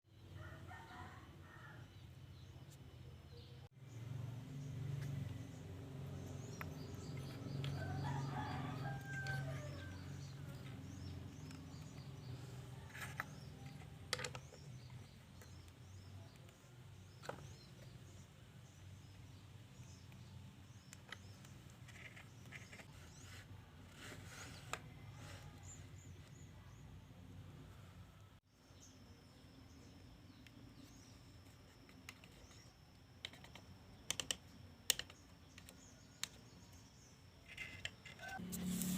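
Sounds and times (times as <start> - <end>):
rooster crowing: 7.7 - 10.6.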